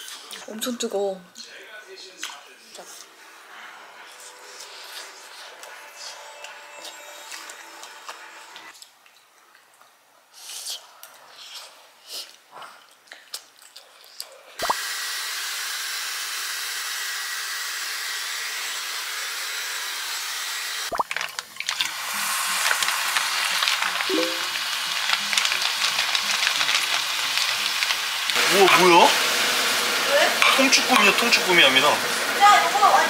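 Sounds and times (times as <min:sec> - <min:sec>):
faint background music: 0:00.0 - 0:09.4
food sizzling in a pan: 0:20.2 - 0:33.0.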